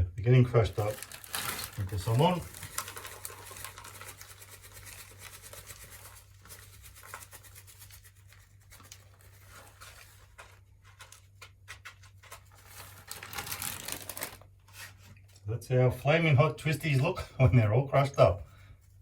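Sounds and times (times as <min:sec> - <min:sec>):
plastic snack bag crackling: 0:00.5 - 0:11.3, 0:12.4 - 0:14.7.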